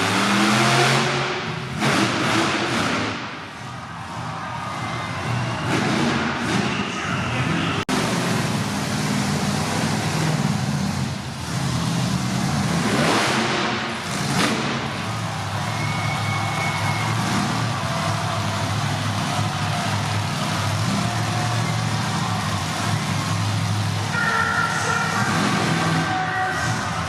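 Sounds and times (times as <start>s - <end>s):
truck engine revving: 0.0s - 27.0s.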